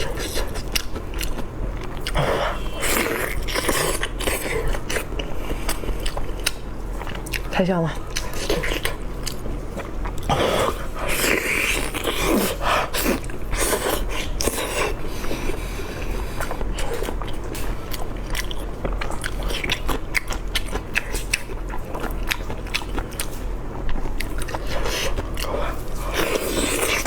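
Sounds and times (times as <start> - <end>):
chewing crunchy food: 0.0 - 27.0.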